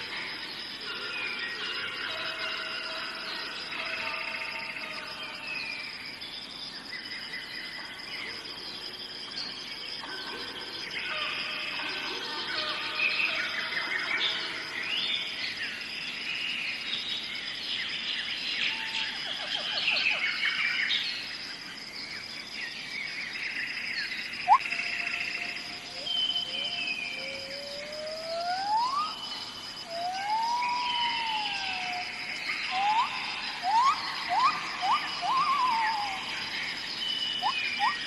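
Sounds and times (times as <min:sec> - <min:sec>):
birds chirping and trilling: 0:00.0 - 0:38.0
high insect drone: 0:00.0 - 0:38.0
bird whistles: 0:24.4 - 0:24.6, 0:25.9 - 0:29.2, 0:32.7 - 0:36.2, 0:37.4 - 0:38.0.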